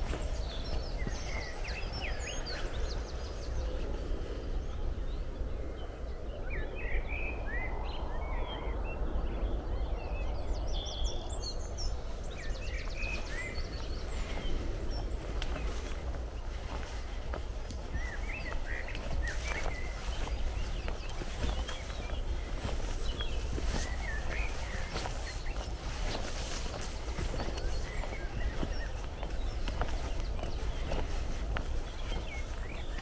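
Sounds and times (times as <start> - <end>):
birds singing and calling: 0.0 - 33.0
rustling noise: 13.1 - 33.0.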